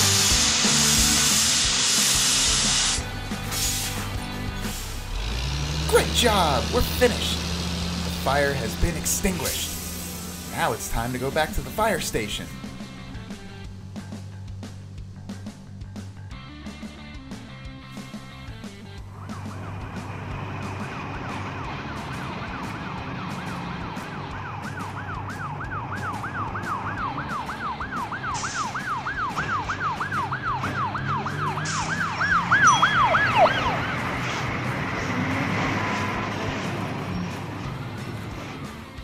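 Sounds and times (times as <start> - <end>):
fire truck siren yelping: 2.4 - 12.4, 19.0 - 38.9
low vehicle engine rumble: 3.0 - 39.0.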